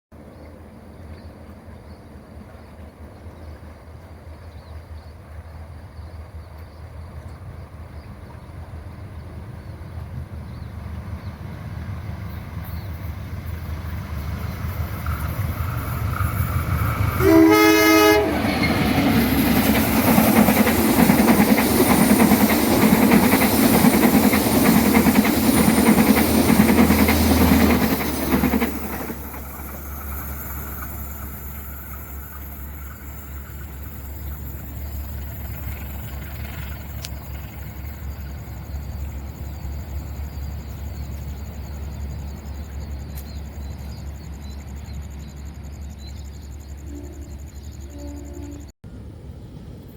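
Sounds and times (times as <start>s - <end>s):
train wheels rumbling on rails: 0.6s - 49.9s
locomotive horn blast: 17.2s - 18.5s, 46.8s - 48.7s.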